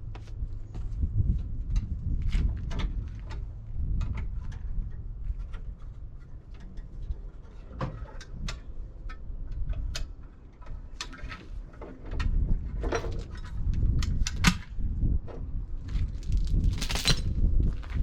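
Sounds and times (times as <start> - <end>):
steady low rumble: 12.4 - 18.0.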